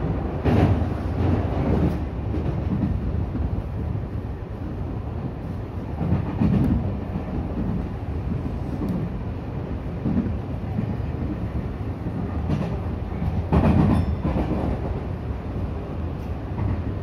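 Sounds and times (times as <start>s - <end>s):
electric train low rumble: 0.0s - 17.0s
wheel clickety-clack: 12.1s - 14.8s
train clatter burst: 12.1s - 15.0s.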